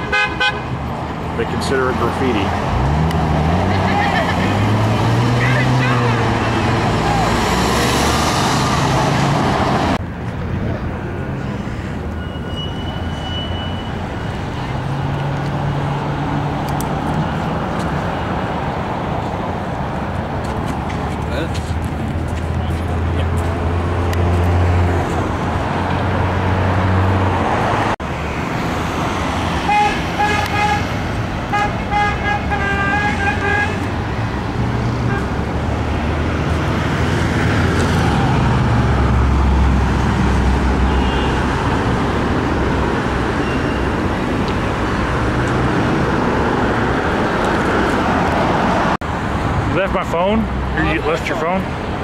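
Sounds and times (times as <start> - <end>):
car horn honks: 0.0 - 0.7, 29.6 - 30.9, 31.5 - 33.9, 35.0 - 35.4, 40.8 - 41.6
road traffic passing: 0.0 - 52.0.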